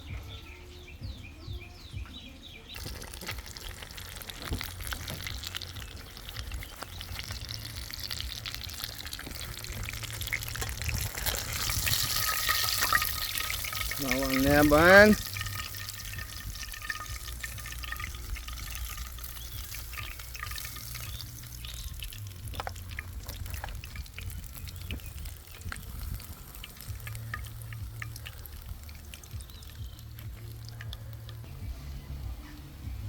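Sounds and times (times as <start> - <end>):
fish sizzling in hot oil: 2.8 - 31.6
low steady rumble: 2.8 - 33.0.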